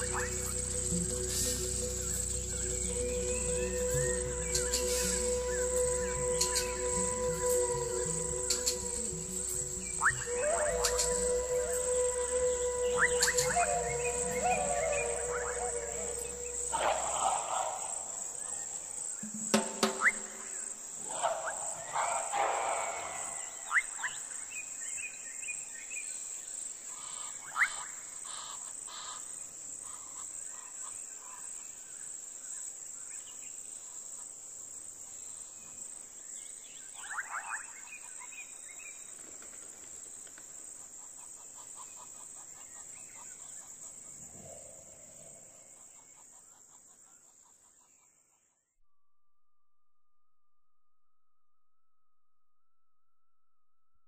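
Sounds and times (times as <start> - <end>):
insect chorus: 0.0 - 48.6
scattered chirps and calls: 19.5 - 24.3.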